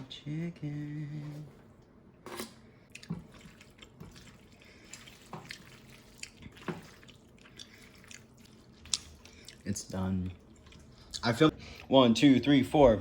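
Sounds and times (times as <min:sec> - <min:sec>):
spoon wet plops and scrapes: 0:02.3 - 0:09.1.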